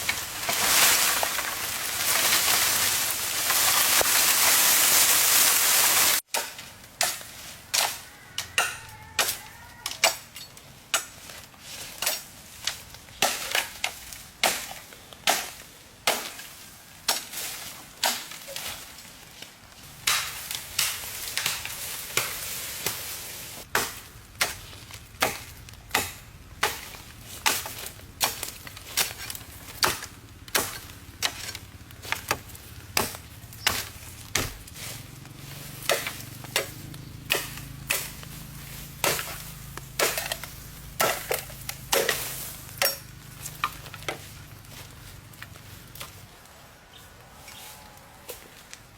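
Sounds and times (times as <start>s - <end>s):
blade chopping wood: 20.0s - 23.0s, 23.7s - 34.8s, 35.8s - 44.2s.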